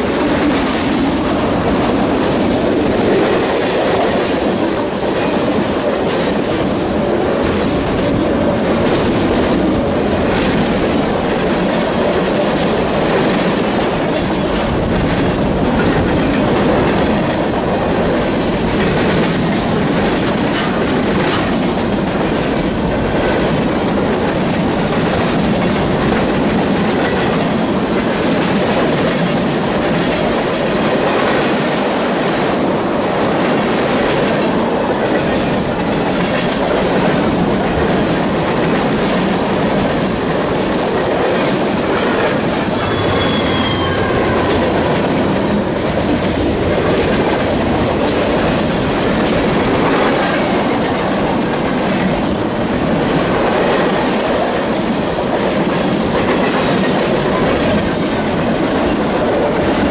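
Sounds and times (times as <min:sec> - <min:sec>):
train wheels clicking over rail joints: 0:00.0 - 0:59.9
faint wheel squeal: 0:42.8 - 0:44.8.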